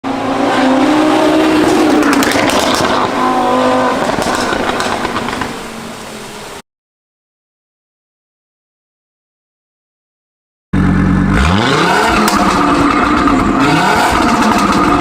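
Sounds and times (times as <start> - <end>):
car engine accelerating hard: 0.0 - 5.4, 10.8 - 15.0
exhaust pops and crackles: 1.6 - 3.2, 4.0 - 5.6, 11.9 - 15.0.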